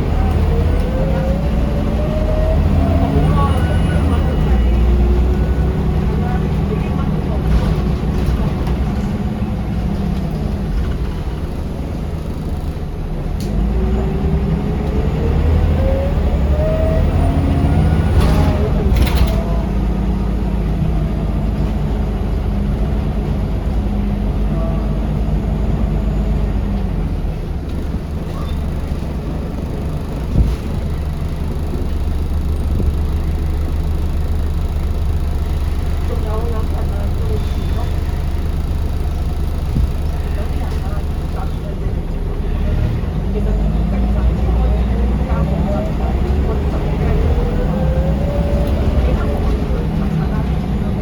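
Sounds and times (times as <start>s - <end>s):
bus engine droning: 0.0s - 51.0s.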